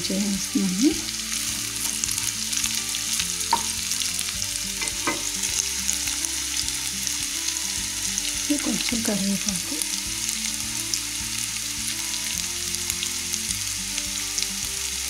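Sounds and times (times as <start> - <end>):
food sizzling in oil: 0.0 - 15.0
spatula knocking against pan: 3.5 - 3.8, 4.8 - 5.3.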